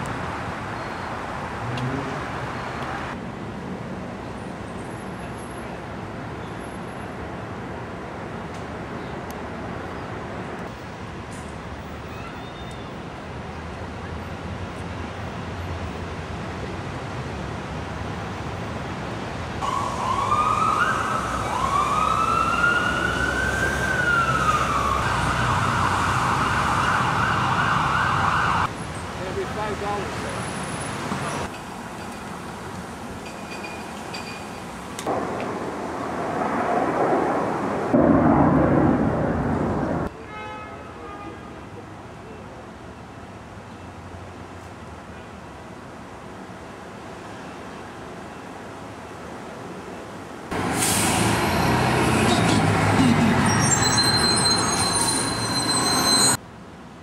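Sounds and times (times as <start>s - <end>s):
street traffic: 0.0s - 57.0s
emergency vehicle siren wailing: 19.6s - 28.7s, 50.6s - 56.4s
passing vehicle rushing: 50.5s - 56.3s.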